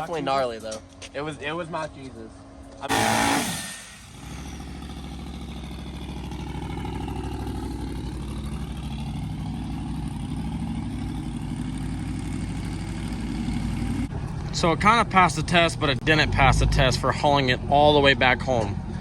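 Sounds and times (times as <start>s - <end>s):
vehicle engine idling: 0.0s - 19.0s
loud sound: 2.9s - 5.2s.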